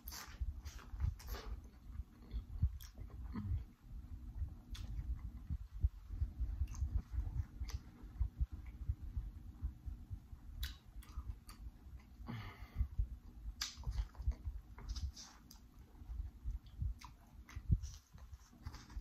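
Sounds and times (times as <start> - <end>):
chewing food with mouth smacks: 0.0 - 3.8, 4.4 - 9.8, 10.4 - 12.2, 13.5 - 19.0
sharp mouth clicks: 10.5 - 11.6, 13.6 - 14.4.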